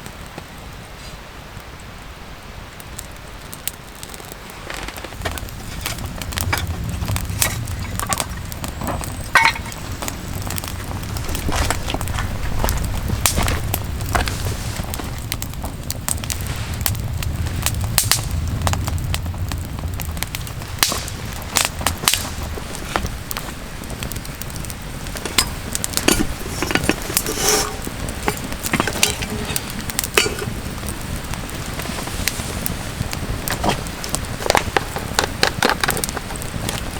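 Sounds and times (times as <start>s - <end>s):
campfire crackling and popping: 0.0s - 36.9s
low rumble: 5.3s - 31.4s.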